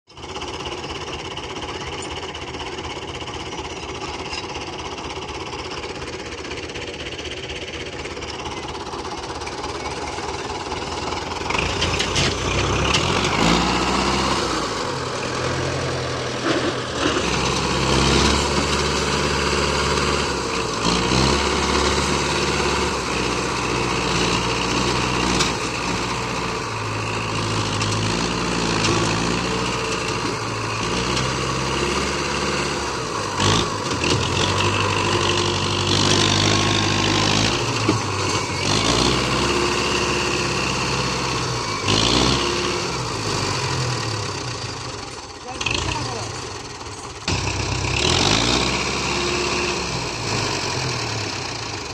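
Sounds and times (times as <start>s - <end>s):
tractor engine running: 0.1s - 51.9s.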